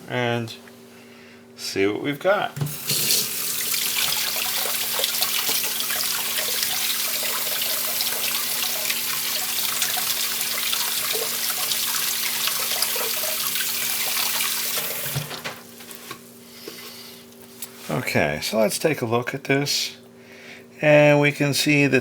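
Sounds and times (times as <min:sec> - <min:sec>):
tap water running into sink: 0:02.6 - 0:15.5.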